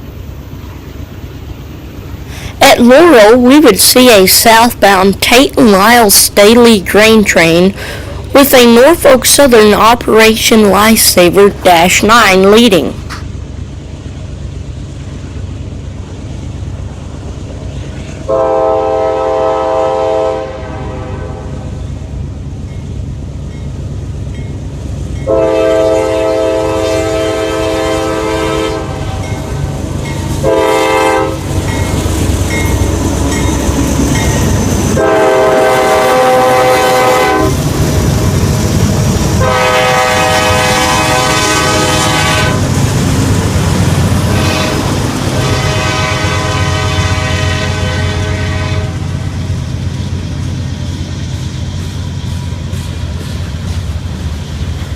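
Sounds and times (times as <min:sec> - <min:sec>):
locomotive engine and wheels rumbling: 0:00.0 - 0:54.9
locomotive air horn blasts: 0:18.3 - 0:21.6, 0:25.3 - 0:29.2, 0:30.4 - 0:31.5, 0:35.0 - 0:37.6, 0:39.4 - 0:42.6, 0:44.3 - 0:49.1.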